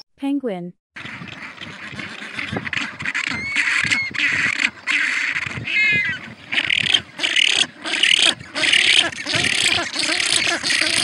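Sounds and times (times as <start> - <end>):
penguins braying: 1.0 - 11.0.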